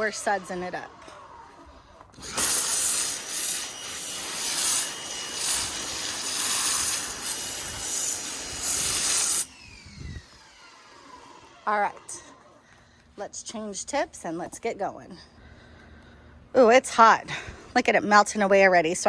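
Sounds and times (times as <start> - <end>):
pressure washer spraying hiss: 2.2 - 9.5.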